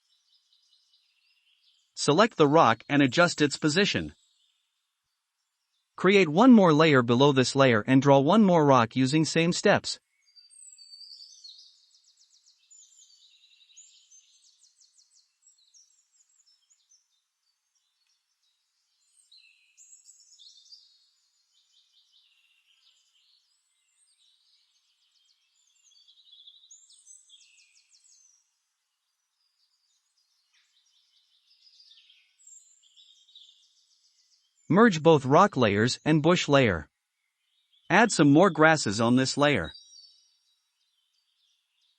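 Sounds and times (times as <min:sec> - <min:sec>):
faint songbirds singing: 0:00.0 - 0:34.7, 0:35.6 - 0:41.9.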